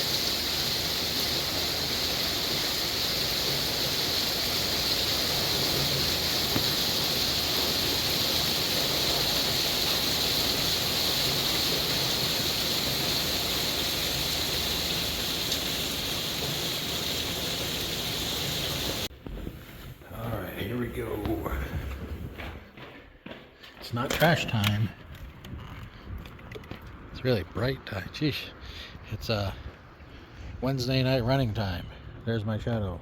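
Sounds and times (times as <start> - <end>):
rain shower falling: 0.0 - 22.3.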